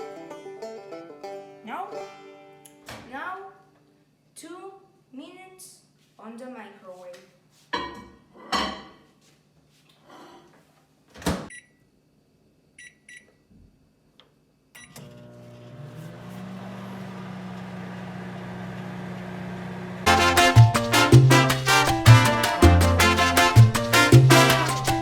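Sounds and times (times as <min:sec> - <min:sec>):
music: 0:00.0 - 0:02.8, 0:20.1 - 0:25.0
keypad beeps: 0:11.5 - 0:11.7
microwave oven humming: 0:14.8 - 0:20.1.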